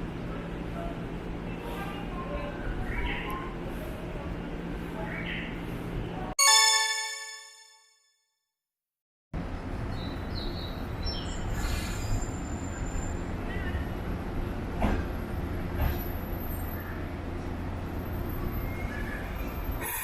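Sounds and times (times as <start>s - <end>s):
electric train rumbling on rails: 9.4s - 20.0s.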